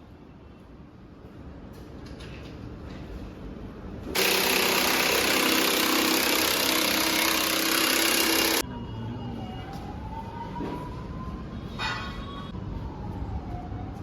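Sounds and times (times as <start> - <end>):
power tool running: 4.2 - 8.6.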